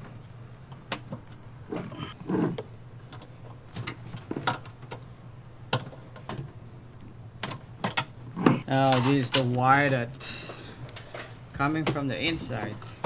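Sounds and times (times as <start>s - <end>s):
faint steady hum: 0.0s - 13.0s
light clicks and knocks of parts: 2.6s - 13.0s.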